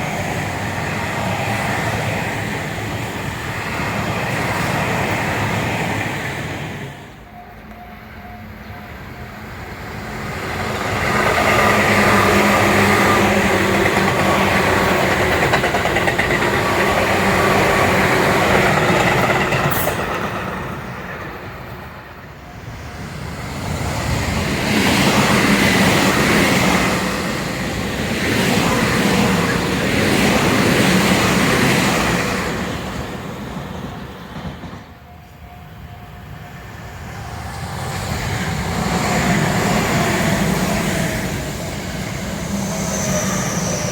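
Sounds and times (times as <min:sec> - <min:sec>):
electric trains passing: 0:00.0 - 0:43.9
wheels running on rails: 0:10.2 - 0:20.6.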